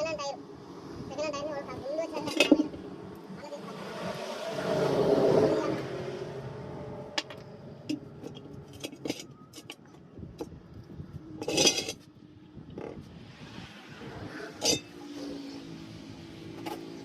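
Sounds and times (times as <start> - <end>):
metal tools clinking: 2.2 - 2.8, 7.9 - 9.9, 11.4 - 12.0, 14.6 - 14.9.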